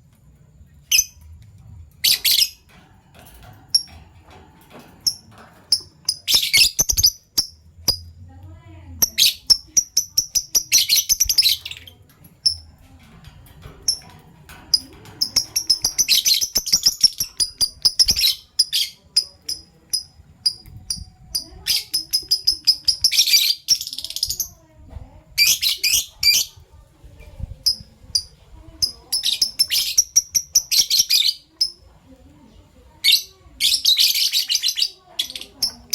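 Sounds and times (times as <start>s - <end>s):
lovebirds chirping: 5.0s - 8.1s, 9.0s - 12.7s, 14.7s - 24.6s, 27.6s - 35.9s.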